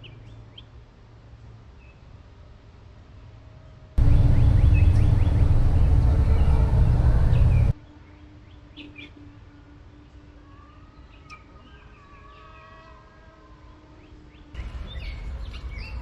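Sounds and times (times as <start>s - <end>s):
steady low hum: 4.0s - 7.8s
wind buffeting microphone: 4.0s - 7.8s
birds chirping faintly: 4.0s - 16.0s.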